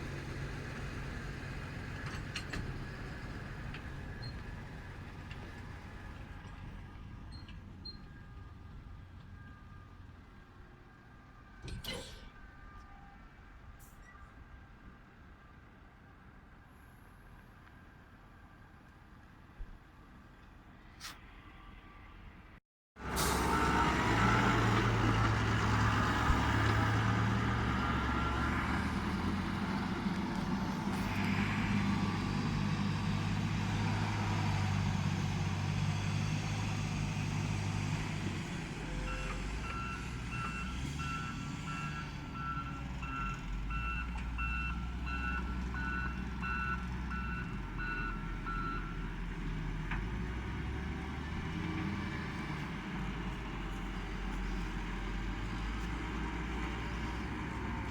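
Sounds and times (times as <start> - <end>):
reversing alarm beeping: 39.1 - 49.0.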